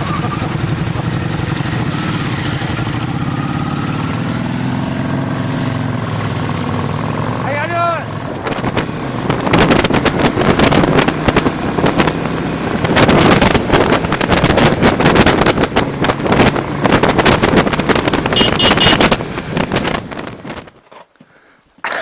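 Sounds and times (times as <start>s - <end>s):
vehicle rattling over dirt track: 0.0s - 20.8s
wind buffeting microphone: 8.2s - 20.7s
short beeps: 18.4s - 19.1s.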